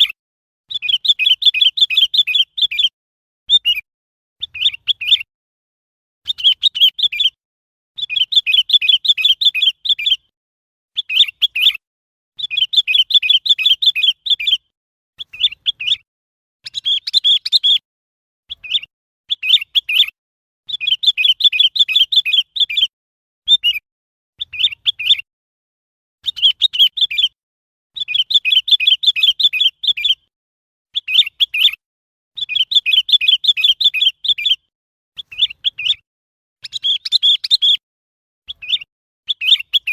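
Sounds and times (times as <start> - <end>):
bulbul calling: 0.0 - 2.9, 3.5 - 3.8, 4.4 - 5.3, 6.3 - 7.4, 8.0 - 10.3, 11.0 - 11.8, 12.4 - 17.8, 18.5 - 22.9, 23.5 - 23.8, 24.4 - 25.3, 26.2 - 27.4, 28.0 - 30.3, 30.9 - 31.8, 32.4 - 36.0, 36.6 - 37.8, 38.5 - 39.9.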